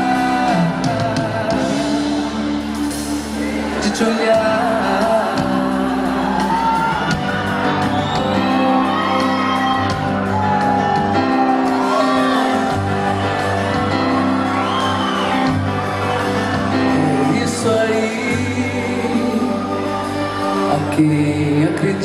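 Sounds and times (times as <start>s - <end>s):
live band playing pop ballad: 0.0s - 22.0s
audience shouting and whooping: 2.8s - 18.2s.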